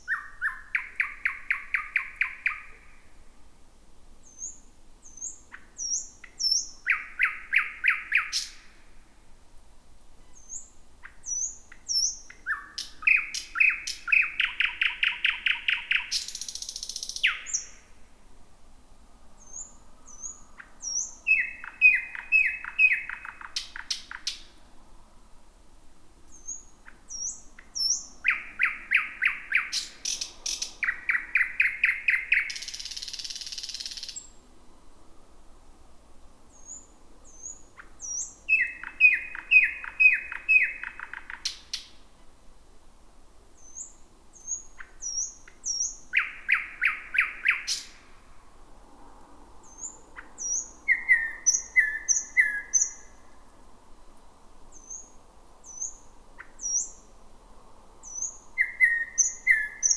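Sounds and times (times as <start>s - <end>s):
nightingale singing: 0.0s - 3.1s, 4.2s - 8.8s, 10.2s - 18.0s, 19.4s - 24.6s, 26.3s - 34.4s, 36.5s - 42.0s, 43.6s - 48.1s, 49.6s - 53.4s, 54.7s - 57.1s, 58.0s - 59.9s.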